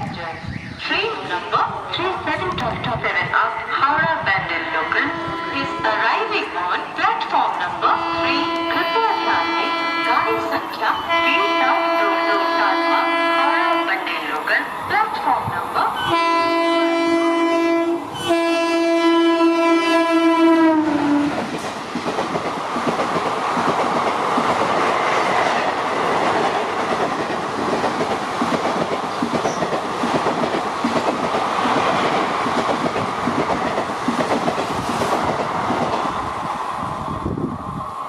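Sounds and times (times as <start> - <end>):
train coaches rushing past: 0.0 - 38.0
train horn blasts: 4.6 - 6.3, 7.8 - 14.4, 16.0 - 21.3.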